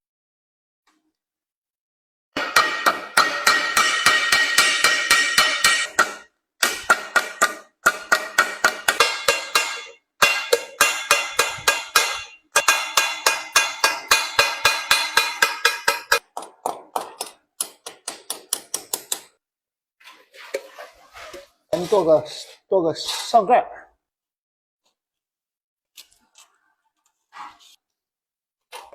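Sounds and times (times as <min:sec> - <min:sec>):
hammer striking sheet metal: 0:02.4 - 0:19.4.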